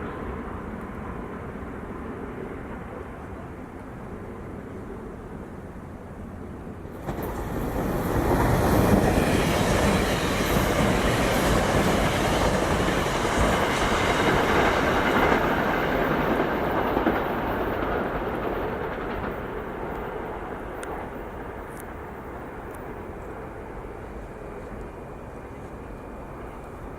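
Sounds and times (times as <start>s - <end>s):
electric train passing: 0.0s - 26.9s.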